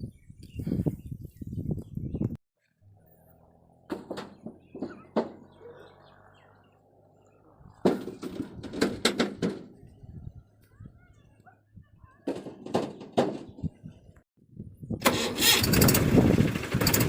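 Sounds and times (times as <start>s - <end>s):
sharp clacks and knocks: 3.9s - 5.6s, 7.8s - 9.8s.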